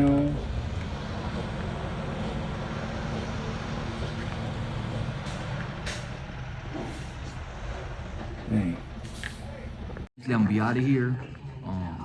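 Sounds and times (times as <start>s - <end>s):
vehicle engine idling: 0.0s - 10.1s.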